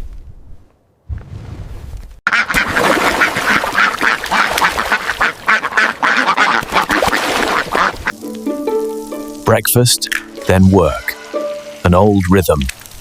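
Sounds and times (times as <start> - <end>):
ducks quacking: 2.3 - 8.1.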